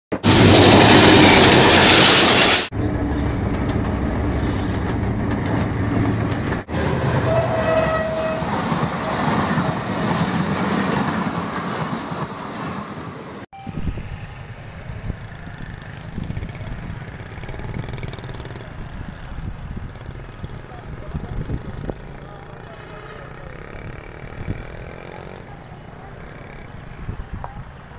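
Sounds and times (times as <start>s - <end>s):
train wheels clattering on rails: 0.1s - 13.4s
train horn: 6.8s - 8.7s.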